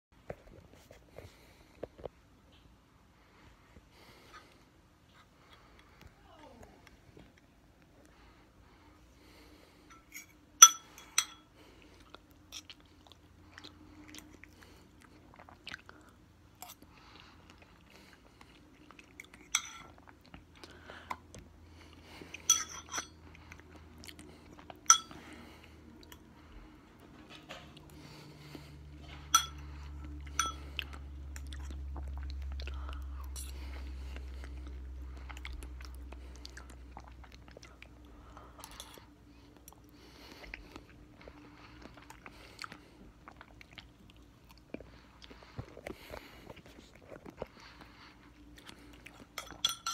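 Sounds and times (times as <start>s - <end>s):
person chewing mango: 11.6s - 49.6s
low hum: 20.6s - 43.5s.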